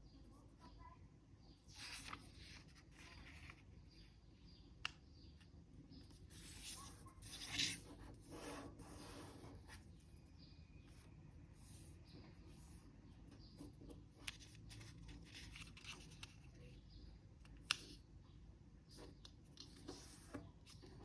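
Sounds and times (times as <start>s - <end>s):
paper rustling and creasing: 1.8s - 3.7s, 14.3s - 16.6s.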